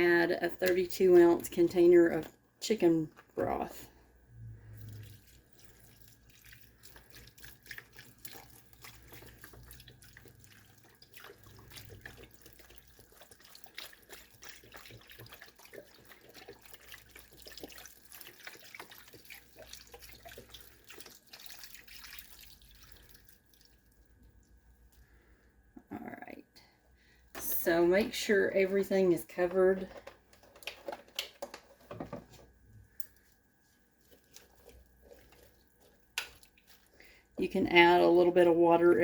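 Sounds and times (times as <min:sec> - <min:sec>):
liquid glugging and splashing: 0:04.5 - 0:25.0, 0:33.2 - 0:38.3.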